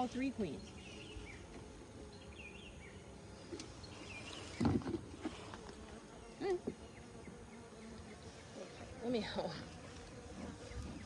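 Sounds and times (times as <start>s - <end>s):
bees buzzing: 0.0s - 11.0s
brief thump: 4.6s - 5.3s.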